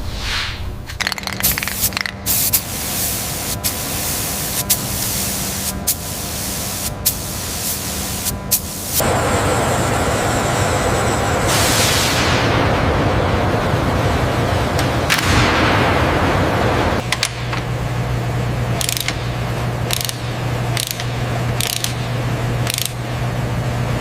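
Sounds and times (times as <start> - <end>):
spraying hiss: 1.4 - 9.1
sharp clicks: 19.9 - 23.0.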